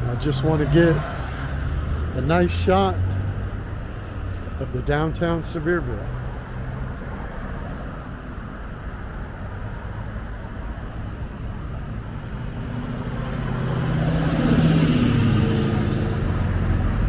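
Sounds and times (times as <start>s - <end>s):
vehicle passing close: 0.0s - 4.6s, 9.3s - 17.0s
traffic rumble: 0.0s - 17.0s.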